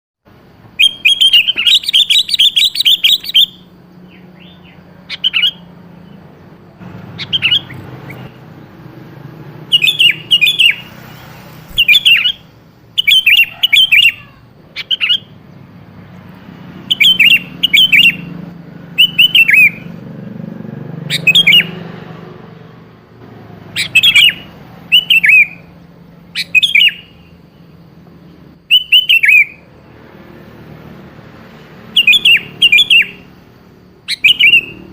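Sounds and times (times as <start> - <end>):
bulbul chirping song: 0.3 - 34.9.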